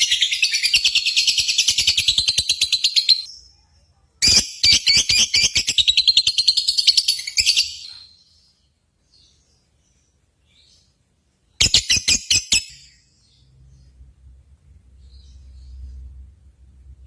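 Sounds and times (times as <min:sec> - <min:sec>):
lovebird rapid chirping: 0:00.0 - 0:03.3, 0:04.2 - 0:08.0, 0:11.6 - 0:13.0.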